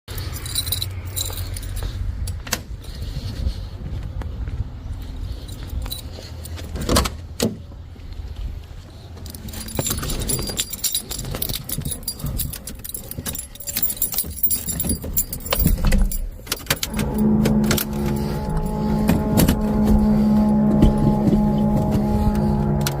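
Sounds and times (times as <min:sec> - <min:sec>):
car keys jangling: 0:00.1 - 0:03.1, 0:05.3 - 0:07.1, 0:09.2 - 0:23.0
steady pitched drone: 0:16.8 - 0:23.0
low rumble: 0:16.9 - 0:23.0.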